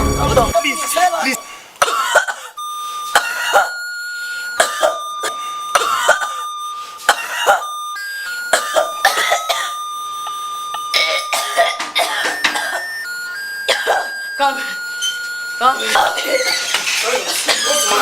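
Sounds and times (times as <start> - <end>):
steady high tones: 0.0 - 1.5, 2.6 - 18.0
person coughing hard: 1.8 - 2.6, 3.2 - 3.7, 4.6 - 6.4, 7.1 - 7.6, 8.5 - 9.8, 11.0 - 12.9, 13.7 - 14.1.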